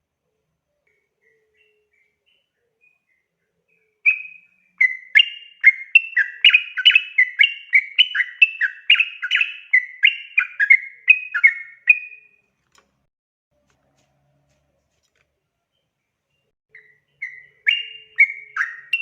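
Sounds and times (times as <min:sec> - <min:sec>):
bird whistling song: 0:00.8 - 0:12.4, 0:16.4 - 0:19.0.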